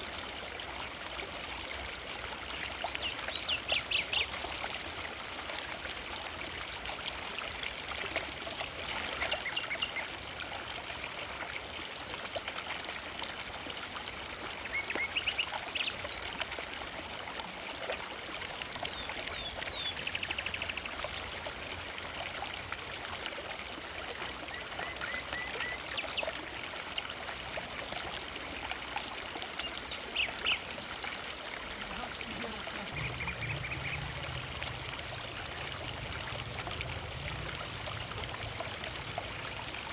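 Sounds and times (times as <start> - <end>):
river water rushing over stones: 25.9 - 39.9.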